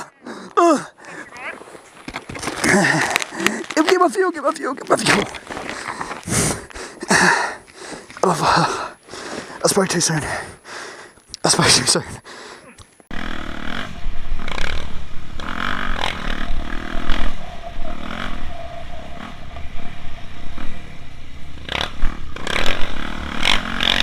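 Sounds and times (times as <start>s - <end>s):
dirt bike engine: 13.1s - 24.0s.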